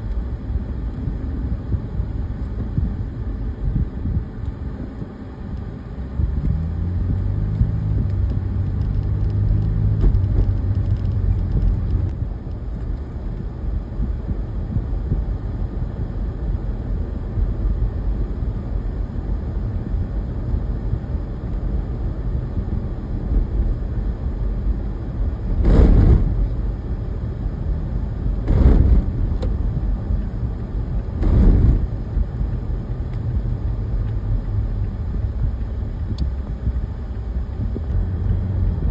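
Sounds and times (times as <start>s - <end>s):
heavy vehicle engine rumbling: 0.0s - 38.9s
short loud bursts of noise: 25.6s - 26.4s.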